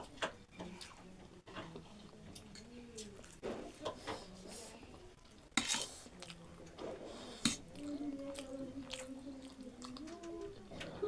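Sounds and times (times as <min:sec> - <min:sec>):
person chewing noodles: 0:04.9 - 0:11.0.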